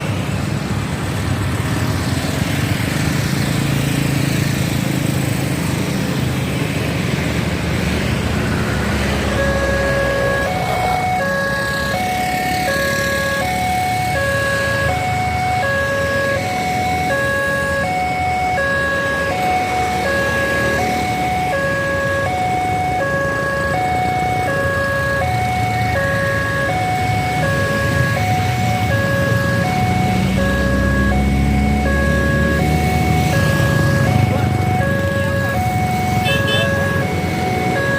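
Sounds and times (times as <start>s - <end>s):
road traffic noise: 0.0s - 37.9s
level crossing two-tone alarm: 9.0s - 37.9s.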